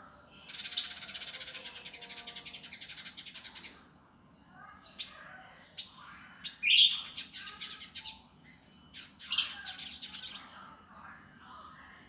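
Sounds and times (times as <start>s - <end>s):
songbird rapid rattling song: 0.5s - 3.8s.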